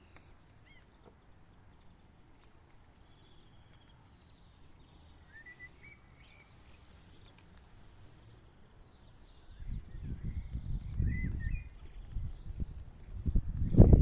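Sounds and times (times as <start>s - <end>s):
faint bird chirps: 3.0s - 12.6s.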